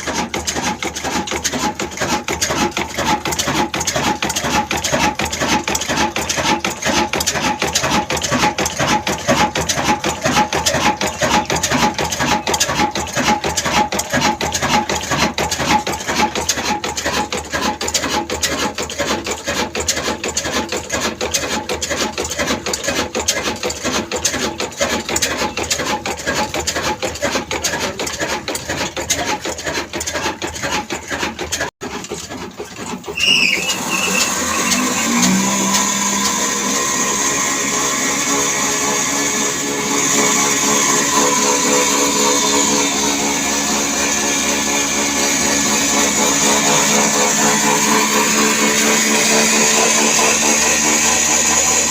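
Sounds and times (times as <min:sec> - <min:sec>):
diesel engine knocking: 0:00.0 - 0:37.6
smoother machine sound: 0:00.0 - 0:51.9.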